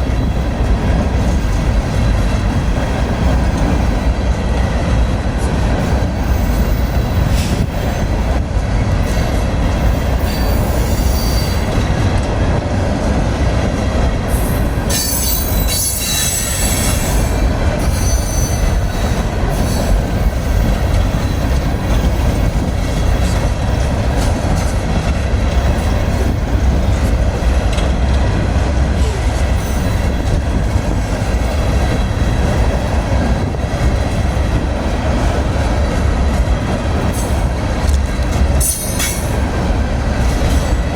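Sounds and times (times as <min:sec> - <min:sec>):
train cars rumbling past: 0:00.0 - 0:40.9
steel wheels squealing: 0:06.2 - 0:08.2, 0:09.0 - 0:11.8, 0:14.3 - 0:24.2, 0:38.6 - 0:39.4.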